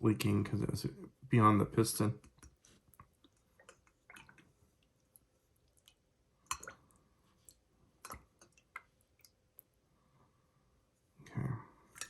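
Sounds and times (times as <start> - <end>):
small wet squishes: 2.2 - 9.8.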